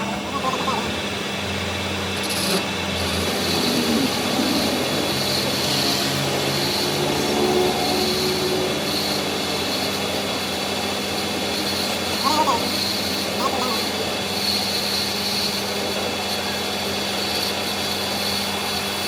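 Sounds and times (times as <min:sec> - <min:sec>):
power tool working metal: 0:00.0 - 0:19.0.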